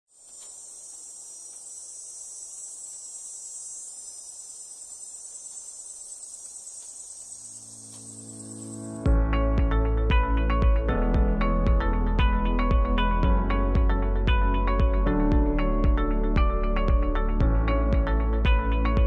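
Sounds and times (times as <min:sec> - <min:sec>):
high-pitched hiss: 0:00.1 - 0:09.0
music: 0:07.9 - 0:19.0.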